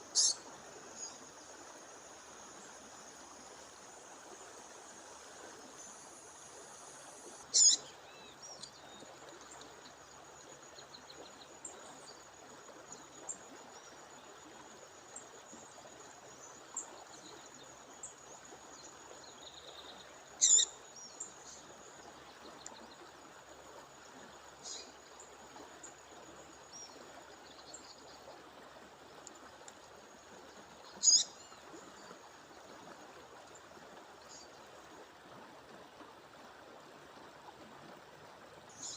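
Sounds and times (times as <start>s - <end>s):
songbird sharp high calls: 0.1s - 0.4s, 7.5s - 8.7s, 20.4s - 20.8s, 31.0s - 31.4s
faint bird chirps: 0.1s - 1.2s, 7.5s - 9.1s, 19.4s - 21.6s, 30.9s - 32.1s.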